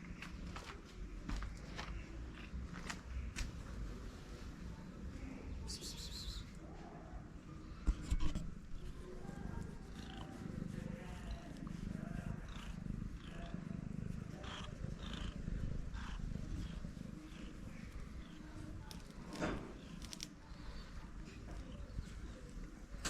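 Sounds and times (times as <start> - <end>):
cat purring: 8.1 - 23.0.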